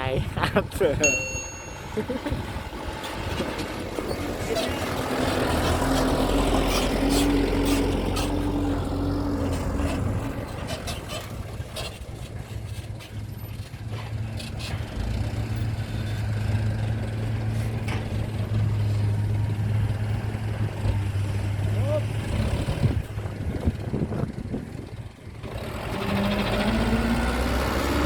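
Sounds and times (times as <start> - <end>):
high steady tone: 1.0 - 2.4
heavy machinery engine running: 1.7 - 28.0.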